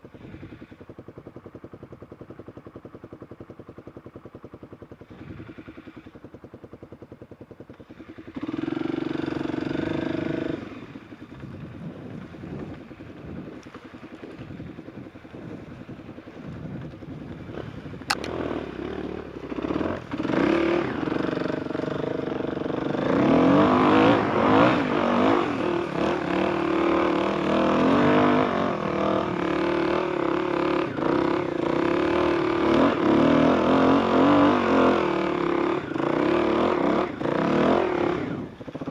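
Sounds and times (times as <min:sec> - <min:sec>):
motorcycle engine idling and revving: 0:00.0 - 0:38.9
sharp click: 0:18.1 - 0:18.4.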